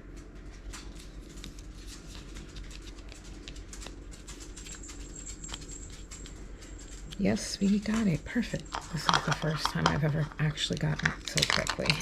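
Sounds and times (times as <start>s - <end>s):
faint steady hum: 0.0s - 12.0s
plastic parts clicking: 8.6s - 12.0s.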